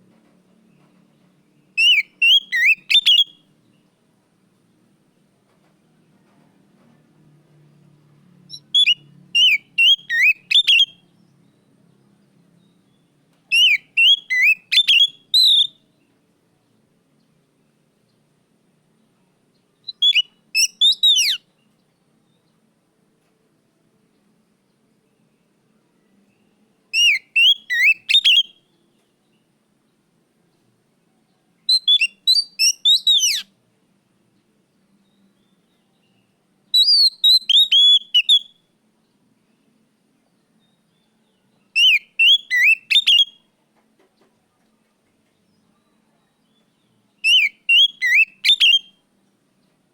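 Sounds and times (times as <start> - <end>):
songbird whistled phrases: 1.8 - 3.5, 8.5 - 11.0, 13.5 - 15.9, 19.8 - 21.5, 26.9 - 28.7, 31.7 - 33.5, 35.1 - 38.7, 41.3 - 43.5, 47.2 - 49.0.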